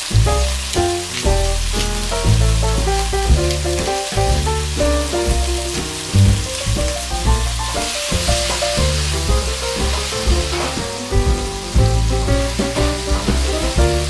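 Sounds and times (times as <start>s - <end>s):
background music with bass: 0.0s - 14.0s
tomatoes sizzling in oil: 0.0s - 14.0s.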